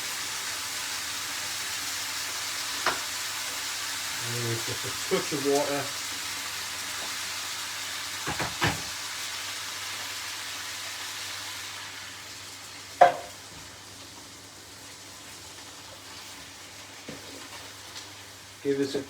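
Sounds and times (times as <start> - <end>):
stew sizzling in a pot: 0.0 - 19.0.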